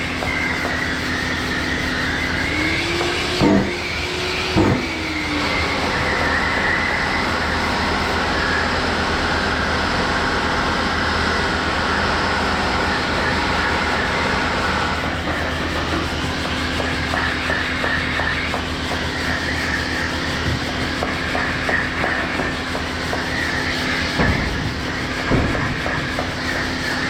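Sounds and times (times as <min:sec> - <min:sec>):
whine: 0:00.0 - 0:27.0
power sander running: 0:00.2 - 0:17.0.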